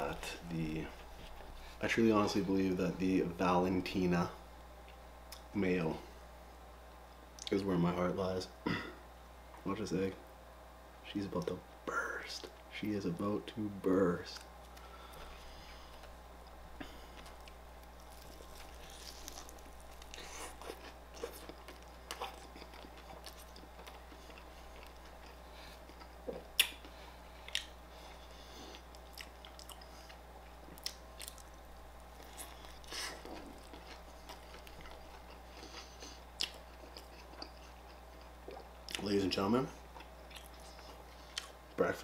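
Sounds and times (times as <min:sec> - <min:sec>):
low steady hum: 0:00.0 - 0:42.0
biting and chewing sandwich: 0:14.6 - 0:39.1.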